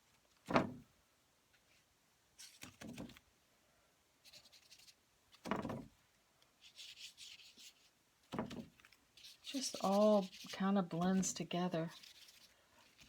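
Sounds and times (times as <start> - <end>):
paper rubbing scratchily: 4.2 - 5.0, 6.6 - 13.0.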